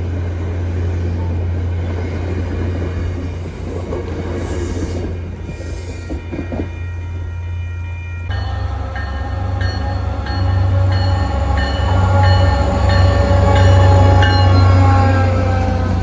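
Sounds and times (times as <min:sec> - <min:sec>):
train engine hum: 0:00.0 - 0:16.0
steady warning tone: 0:05.5 - 0:16.0.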